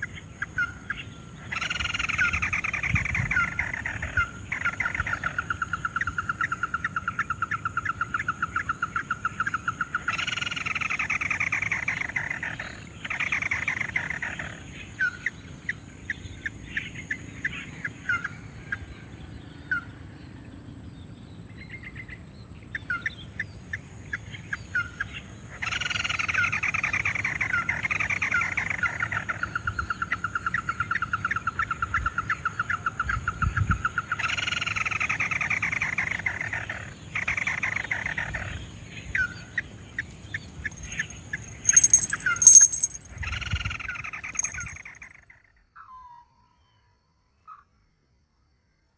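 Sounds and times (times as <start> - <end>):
bird calling rapid notes: 40.8 - 43.0, 44.4 - 44.7.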